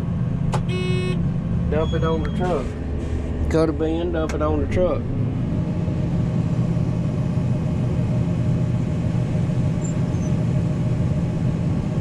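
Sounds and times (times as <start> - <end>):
combine harvester drone: 0.0 - 12.0.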